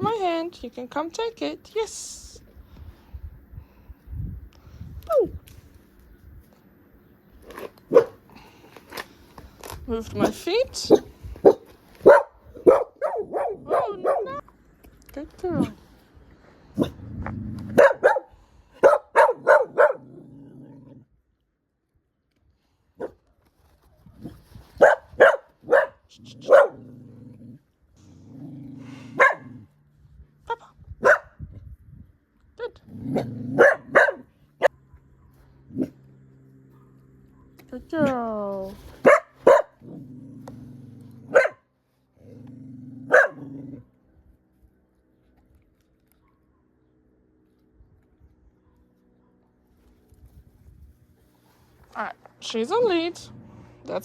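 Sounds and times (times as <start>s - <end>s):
dog barking: 7.9s - 8.2s, 10.9s - 14.4s, 17.8s - 20.1s, 24.8s - 26.8s, 29.1s - 29.5s, 31.0s - 31.4s, 33.6s - 35.9s, 39.0s - 39.8s, 41.3s - 41.6s, 43.1s - 43.5s
dog growling low: 16.7s - 18.0s, 19.9s - 21.2s, 26.1s - 29.8s, 32.7s - 34.0s, 39.8s - 41.4s, 42.1s - 44.1s.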